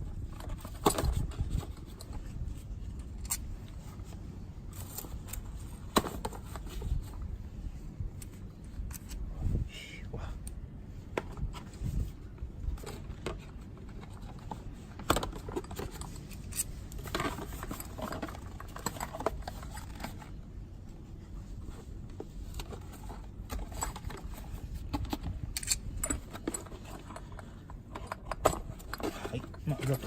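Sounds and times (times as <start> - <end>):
low steady hum: 0.0 - 30.0
metallic tool clicks and scrapes: 8.2 - 9.2, 15.7 - 20.0, 25.2 - 27.3.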